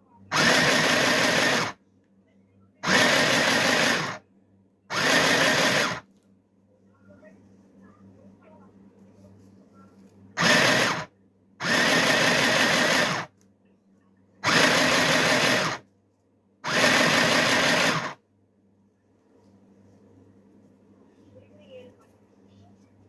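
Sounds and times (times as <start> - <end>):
sewing machine running: 0.3 - 1.8, 2.8 - 4.2, 4.9 - 6.0, 10.4 - 13.3, 14.4 - 15.8, 16.6 - 18.2.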